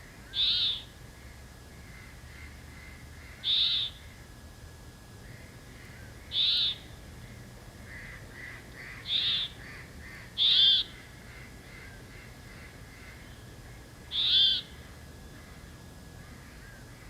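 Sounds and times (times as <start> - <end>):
loud high bird calls: 0.3 - 0.9, 1.9 - 4.2, 5.3 - 6.9, 7.9 - 13.5, 14.1 - 15.6.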